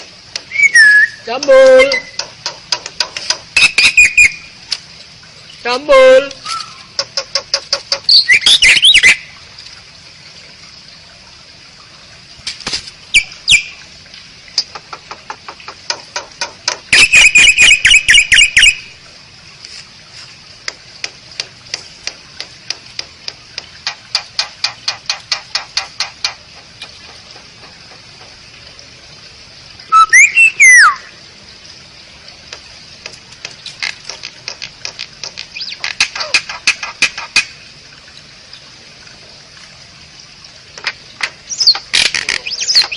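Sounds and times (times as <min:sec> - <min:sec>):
bird sliding whistle: 0:00.5 - 0:02.2, 0:06.4 - 0:06.8, 0:29.9 - 0:31.0
bird clicking song: 0:01.8 - 0:04.8, 0:06.4 - 0:09.2, 0:13.1 - 0:13.7, 0:14.5 - 0:18.8, 0:20.7 - 0:27.0, 0:32.5 - 0:37.6, 0:40.8 - 0:42.9.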